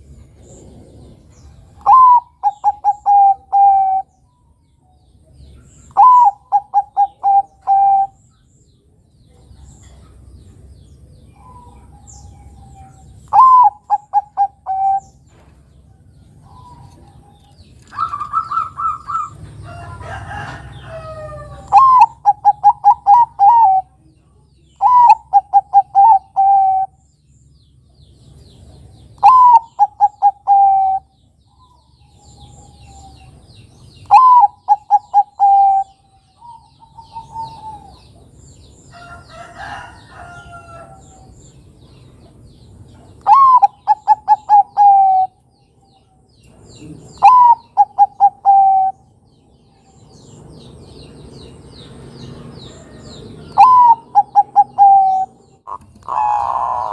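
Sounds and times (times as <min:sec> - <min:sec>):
small birds chirping: 0:00.0 - 0:56.9
dove cooing: 0:00.4 - 0:04.1, 0:06.0 - 0:08.2, 0:11.4 - 0:15.2, 0:16.4 - 0:19.4, 0:20.0 - 0:24.0, 0:24.8 - 0:27.0, 0:29.2 - 0:31.1, 0:34.0 - 0:38.2, 0:43.2 - 0:45.4, 0:46.8 - 0:49.0, 0:53.5 - 0:56.9.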